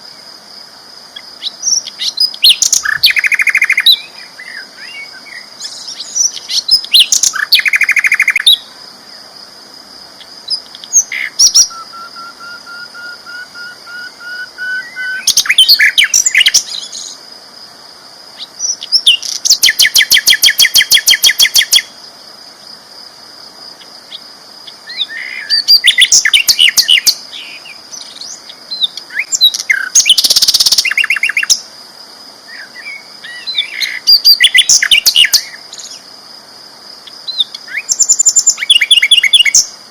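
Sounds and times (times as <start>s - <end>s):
flycatcher singing: 1.4s - 8.7s, 10.2s - 17.2s, 24.1s - 31.6s, 32.5s - 36.0s, 37.1s - 39.8s.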